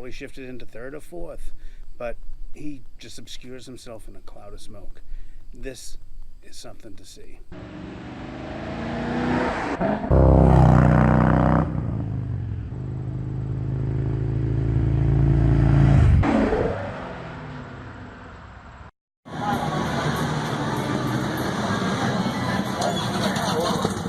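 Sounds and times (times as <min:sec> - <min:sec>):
motorcycle engine revving: 0:07.6 - 0:18.0.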